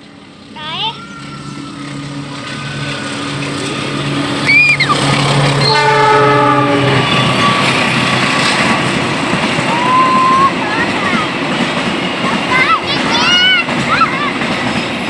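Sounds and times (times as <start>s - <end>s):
train wagons rumbling and clattering: 0.0s - 15.0s
shrill squeal: 0.8s - 5.8s
train horn blast: 1.2s - 8.7s.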